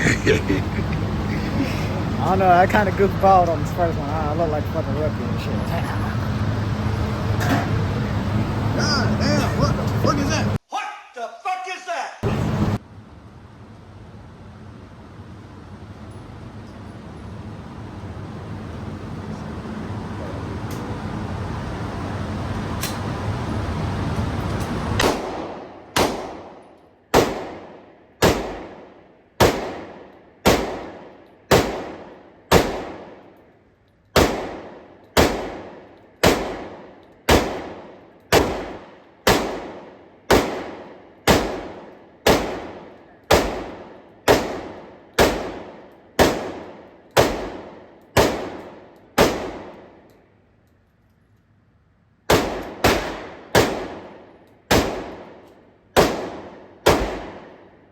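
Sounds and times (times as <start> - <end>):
gunshots with ringing tail: 25.0 - 33.3, 34.2 - 50.0, 52.3 - 55.4, 56.0 - 57.7.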